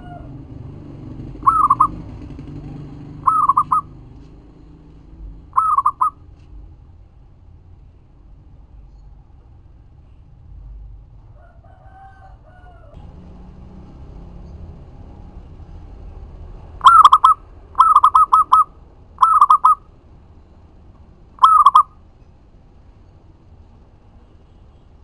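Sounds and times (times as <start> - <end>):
dove cooing in rolling notes: 0.0 - 4.2, 5.6 - 6.2, 16.7 - 19.8, 21.4 - 21.9
fainter lower bird call: 1.4 - 4.1, 5.5 - 6.3, 16.7 - 19.9, 21.3 - 22.3.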